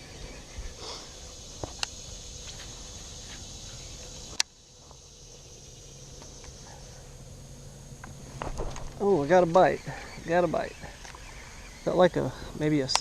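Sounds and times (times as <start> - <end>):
high-pitched insect chirring: 0.0 - 13.0
sharp clicks: 12.8 - 13.0.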